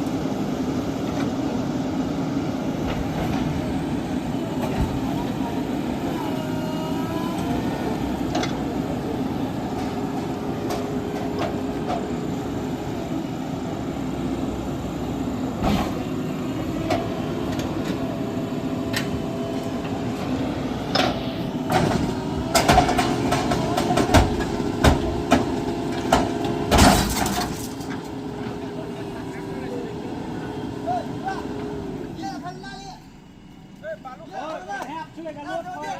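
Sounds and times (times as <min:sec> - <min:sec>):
diesel engine running: 0:00.0 - 0:35.9
sharp knocks and clanks: 0:20.9 - 0:27.7.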